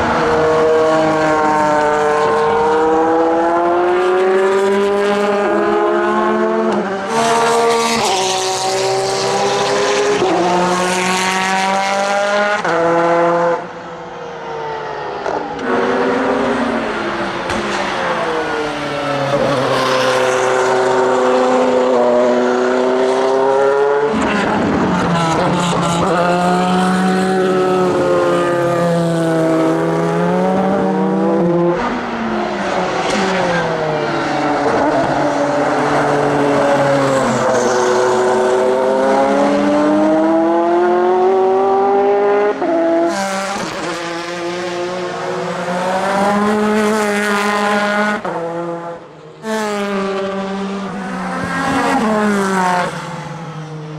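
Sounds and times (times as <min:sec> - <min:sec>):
racing car engine accelerating: 0:20.4 - 0:53.2.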